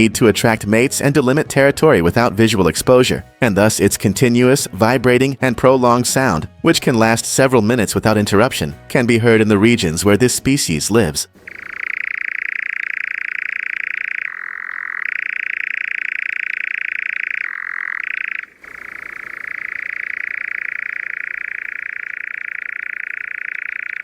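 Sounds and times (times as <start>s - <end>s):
nightjar churring trill: 11.4s - 24.0s.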